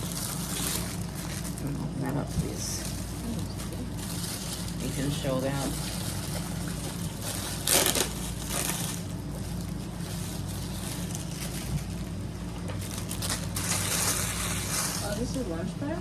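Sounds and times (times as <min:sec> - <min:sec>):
packaging crinkling: 0:00.0 - 0:15.3
package tearing open: 0:05.9 - 0:15.0.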